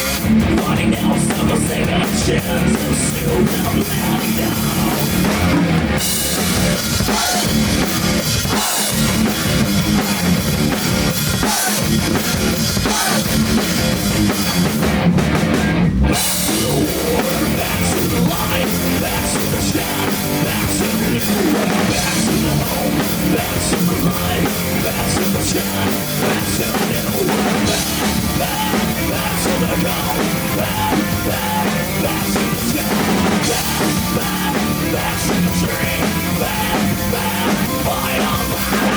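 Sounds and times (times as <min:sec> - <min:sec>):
driving drum kit: 0:00.0 - 0:38.9
rock band playing: 0:00.0 - 0:38.9.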